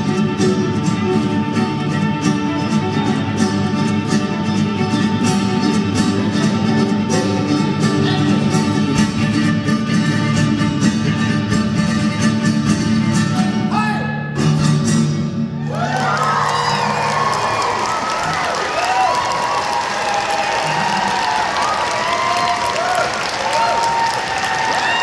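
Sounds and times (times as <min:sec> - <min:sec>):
live band with guitar and fiddle: 0:00.0 - 0:17.4
crowd cheering and shouting: 0:15.6 - 0:25.0.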